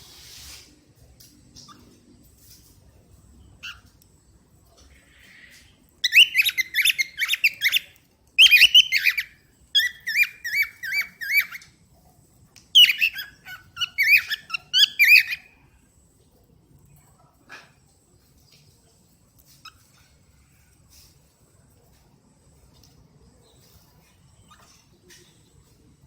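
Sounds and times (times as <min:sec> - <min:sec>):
cockatiel chattering and whistling: 0:03.6 - 0:03.9, 0:06.0 - 0:11.7, 0:12.7 - 0:15.5.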